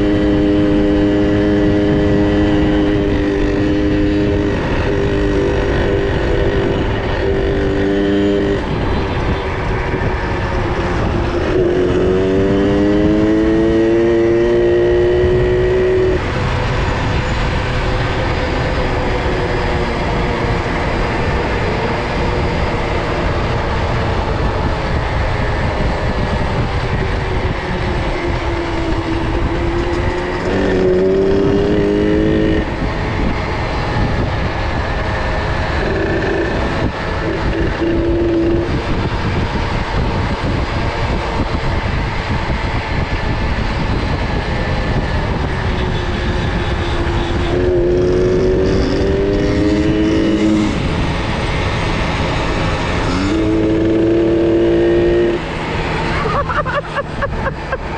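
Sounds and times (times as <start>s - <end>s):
steady rushing noise: 0.0s - 57.9s
engine revving up: 29.0s - 34.5s, 47.2s - 57.9s.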